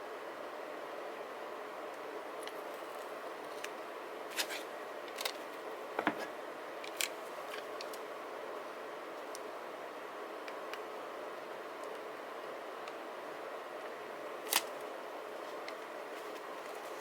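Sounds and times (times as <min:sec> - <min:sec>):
steady background hiss: 0:00.0 - 0:17.0
sharp paper clicks and snips: 0:14.5 - 0:14.8.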